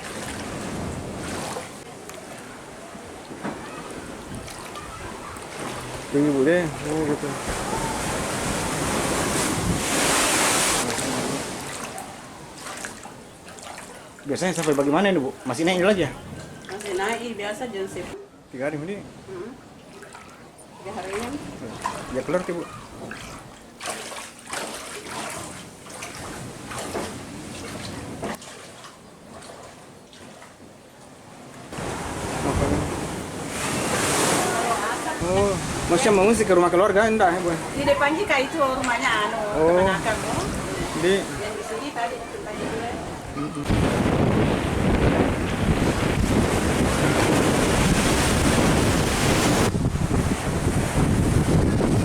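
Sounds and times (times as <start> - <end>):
waves splashing and sloshing: 0.0 - 52.0
strong wind buffeting microphone: 3.7 - 11.4, 37.5 - 52.0.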